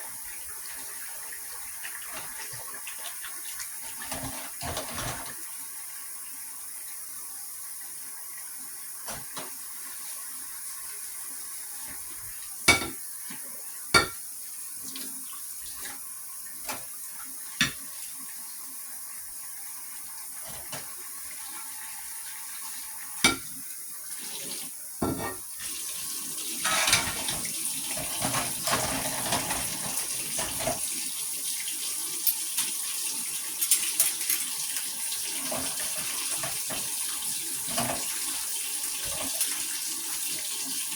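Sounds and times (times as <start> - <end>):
water running from a tap: 0.0 - 40.9
dishes clinking: 12.7 - 13.0, 14.0 - 14.2, 23.2 - 23.5, 25.0 - 25.5, 26.6 - 30.8, 33.6 - 34.8.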